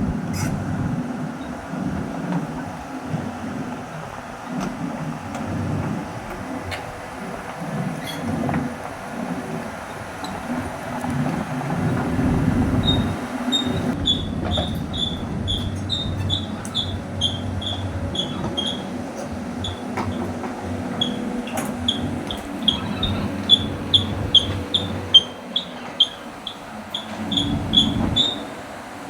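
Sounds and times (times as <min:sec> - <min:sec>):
excavator diesel engine under load: 0:00.0 - 0:29.0
clanking tracks: 0:01.4 - 0:29.0
travel alarm beeping: 0:09.8 - 0:29.0.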